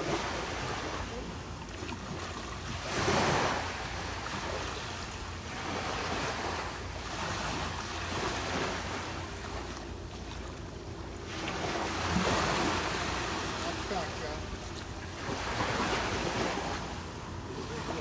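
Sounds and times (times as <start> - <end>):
ocean surf washing in: 11.3 - 14.5, 15.1 - 18.0.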